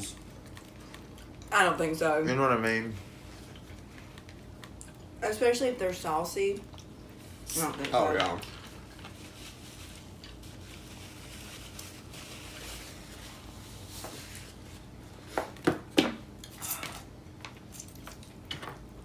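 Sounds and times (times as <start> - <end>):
utensils and takeout containers handled: 16.4 - 17.1.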